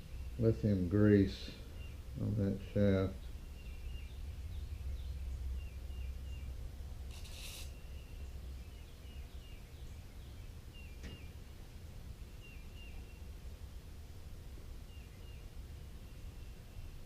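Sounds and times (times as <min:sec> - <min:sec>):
bird chirping: 0:00.0 - 0:13.4, 0:14.8 - 0:17.0
rustling scrape: 0:07.1 - 0:07.7.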